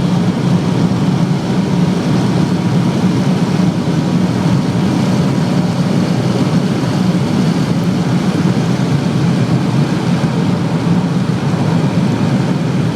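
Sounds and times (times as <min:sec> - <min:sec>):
car engine droning at high speed: 0:00.0 - 0:12.9
wind and tyre noise: 0:00.0 - 0:12.9.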